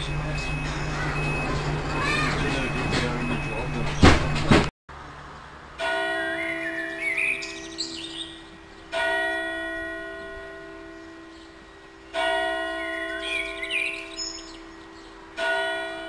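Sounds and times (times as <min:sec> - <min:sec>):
church bell tolling: 0:00.0 - 0:04.0, 0:05.8 - 0:16.0
small birds chirping: 0:06.3 - 0:09.1, 0:09.7 - 0:15.3.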